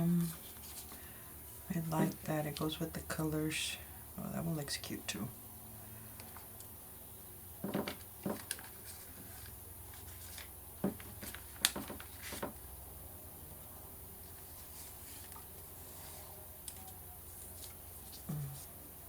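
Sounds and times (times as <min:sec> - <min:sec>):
paper rustling: 0:00.1 - 0:01.1, 0:01.9 - 0:02.7, 0:07.6 - 0:12.6, 0:14.2 - 0:18.7.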